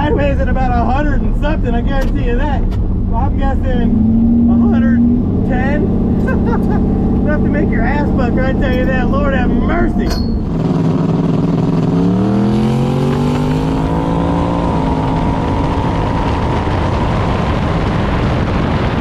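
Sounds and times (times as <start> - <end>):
car engine revving: 0.0 - 19.0
wind and road noise: 0.0 - 19.0.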